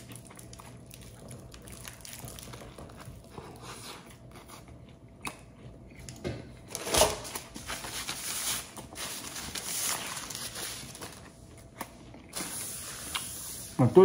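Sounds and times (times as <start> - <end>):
foil wrapping crinkling: 0.0 - 3.7, 6.7 - 11.4
chewing crusty bread: 0.0 - 6.8, 7.4 - 13.3
paper napkin rustling: 7.2 - 11.2.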